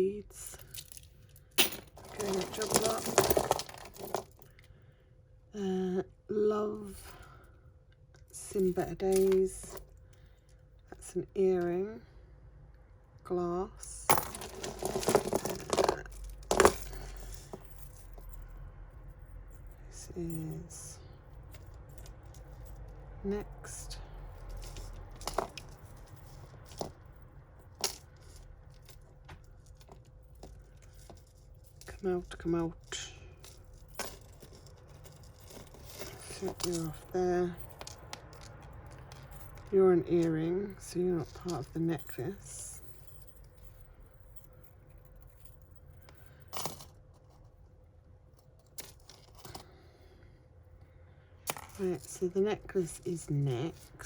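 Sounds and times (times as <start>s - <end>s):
faint steady hum: 0.0s - 54.0s
jewellery clattering: 0.4s - 4.6s, 8.5s - 10.0s, 14.0s - 18.5s, 19.5s - 47.6s, 48.4s - 49.8s, 51.4s - 54.0s
beads clinking: 0.5s - 4.6s, 14.0s - 18.4s, 23.6s - 47.0s.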